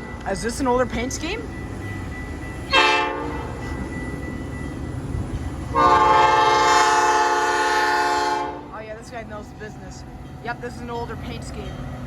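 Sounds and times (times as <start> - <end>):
low rumble of train: 0.0 - 12.0
locomotive air horn blasts: 2.7 - 3.4, 5.7 - 8.7.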